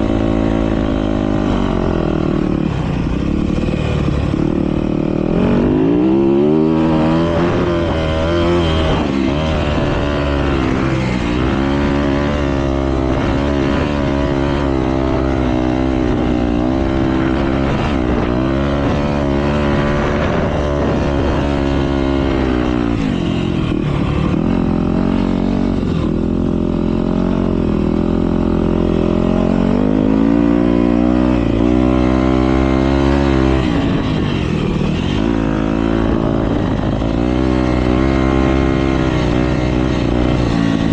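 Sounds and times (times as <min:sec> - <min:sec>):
motocross bike engines revving: 0:00.0 - 0:40.9.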